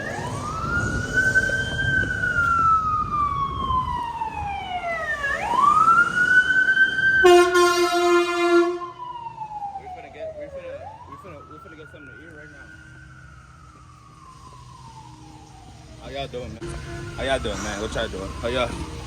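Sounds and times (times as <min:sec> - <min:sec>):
emergency vehicle siren wailing: 0:00.0 - 0:19.0
horn blast: 0:07.2 - 0:08.9, 0:16.6 - 0:18.0.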